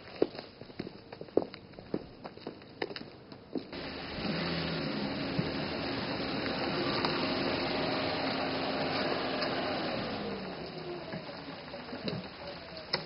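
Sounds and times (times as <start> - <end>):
car engine running: 3.8 - 13.0.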